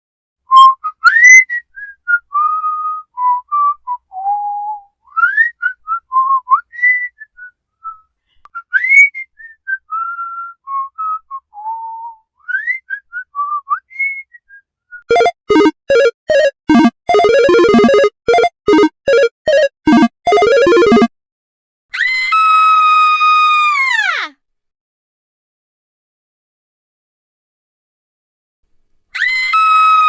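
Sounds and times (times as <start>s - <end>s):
person whistling a tune: 0.5s - 15.1s.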